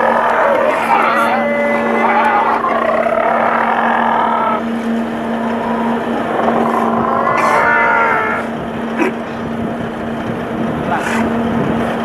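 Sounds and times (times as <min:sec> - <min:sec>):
indistinct voices: 0:00.0 - 0:09.2
boat engine humming: 0:00.0 - 0:12.0.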